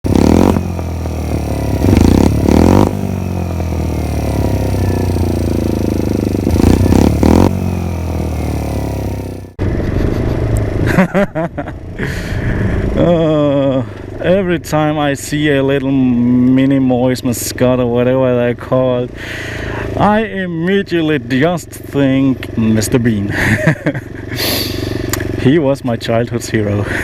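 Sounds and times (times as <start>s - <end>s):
mini motorcycle engine revving: 0.0s - 9.6s, 19.2s - 20.2s, 22.4s - 25.6s.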